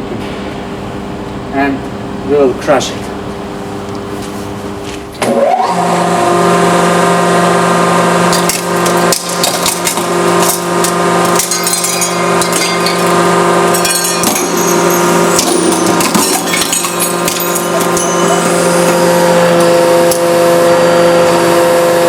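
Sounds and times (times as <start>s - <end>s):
hydraulic pump motor whining and humming: 3.1s - 22.0s
metal cracking under press: 8.3s - 19.0s.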